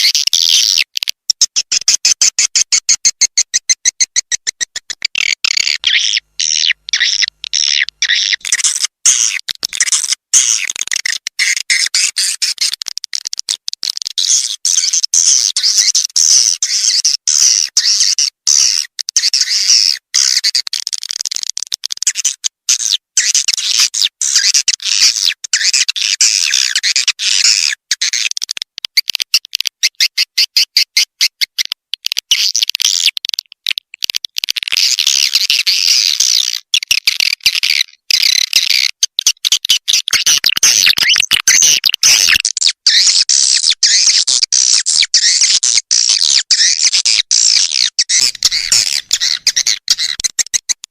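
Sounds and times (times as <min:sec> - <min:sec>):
swiftlets twittering and chirping: 0:00.0 - 0:12.8, 0:35.0 - 0:50.8.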